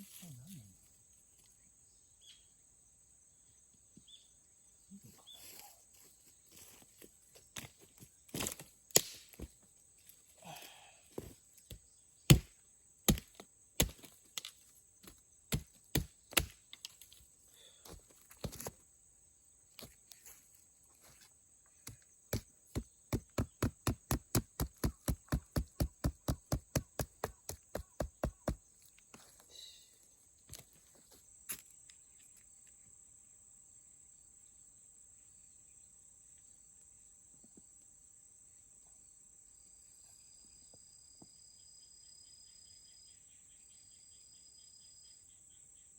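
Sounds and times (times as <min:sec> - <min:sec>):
chopping knocks on wood: 0:12.3 - 0:12.5, 0:13.1 - 0:14.1, 0:15.5 - 0:16.6.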